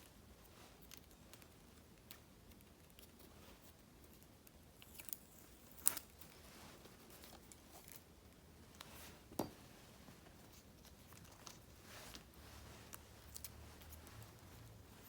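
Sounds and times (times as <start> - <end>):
paper and stickers rustling: 9.9 - 15.0.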